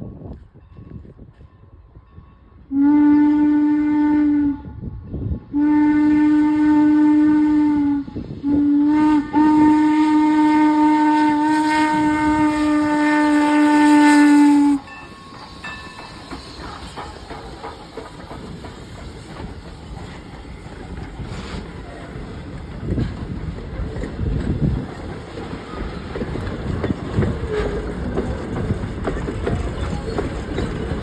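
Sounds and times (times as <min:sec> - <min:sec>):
steam locomotive whistle: 0:02.7 - 0:17.6, 0:26.8 - 0:28.3
train wheels rolling on track: 0:05.1 - 0:31.0.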